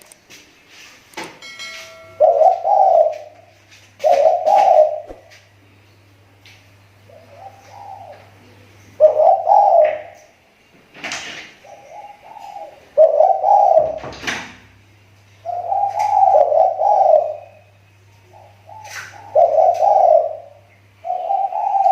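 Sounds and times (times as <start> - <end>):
steady low hum: 0.0 - 21.9
dove cooing: 2.2 - 5.5, 7.0 - 10.3, 11.6 - 14.2, 15.4 - 21.9.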